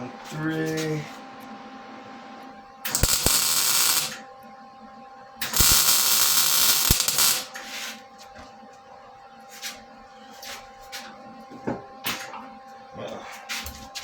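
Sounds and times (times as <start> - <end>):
arc welder crackling hiss: 2.9 - 4.2, 5.4 - 8.0
sharp welding pops: 2.9 - 4.2, 5.4 - 7.6.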